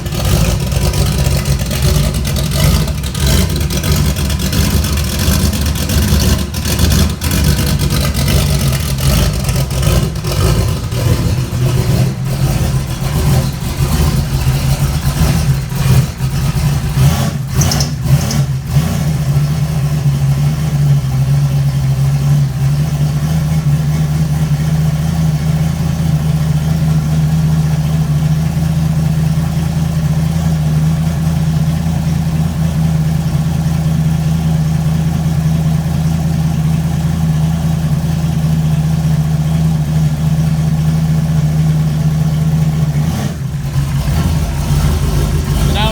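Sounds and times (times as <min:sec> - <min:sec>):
car engine running cold: 0:00.0 - 0:45.9.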